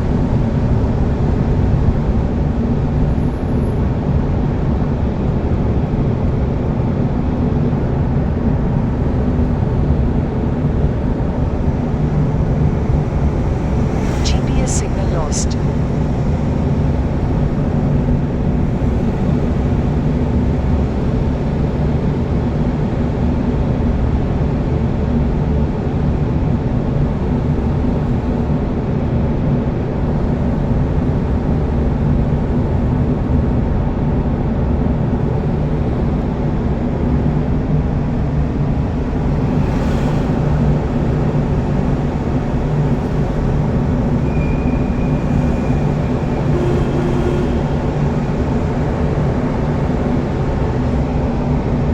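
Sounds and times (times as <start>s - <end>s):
road vehicle engine and tyres: 35.5s - 51.9s.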